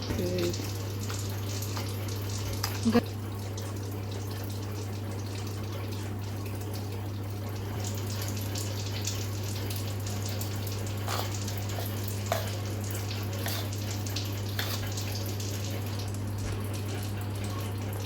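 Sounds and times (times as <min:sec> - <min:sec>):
ingredients sizzling in a pan: 0:09.9 - 0:15.9.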